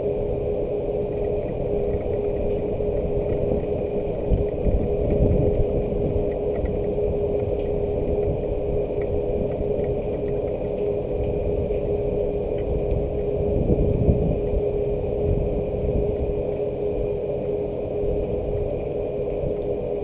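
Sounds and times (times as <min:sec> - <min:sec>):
faint ticks of light rain: 0:00.0 - 0:20.0
low rumble with mechanical hum: 0:00.0 - 0:20.0.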